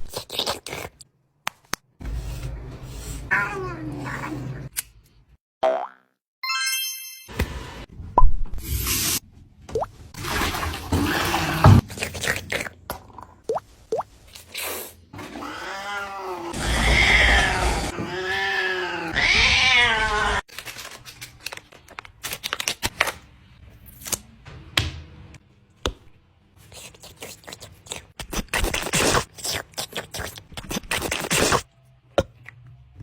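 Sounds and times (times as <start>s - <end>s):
cat meowing: 15.4s - 20.4s.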